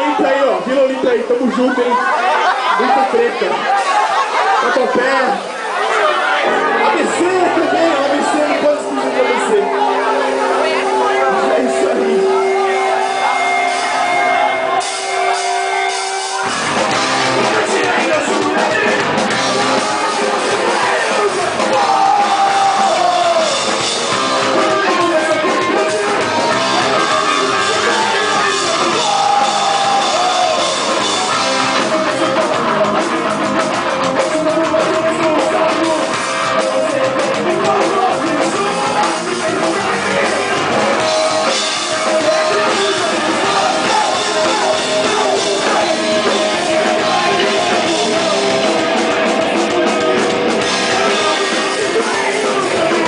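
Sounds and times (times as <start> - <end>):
drums: 0.0 - 53.0
electric guitar: 5.3 - 53.0
person singing: 34.1 - 53.0.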